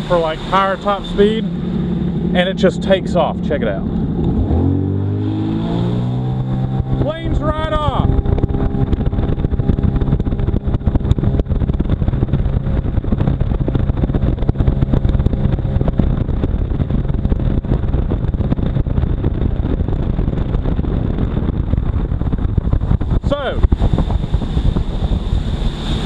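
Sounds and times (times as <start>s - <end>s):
rushing water noise: 0.0s - 4.6s, 5.4s - 8.4s, 23.2s - 26.0s
jet ski engine drone: 0.0s - 26.0s.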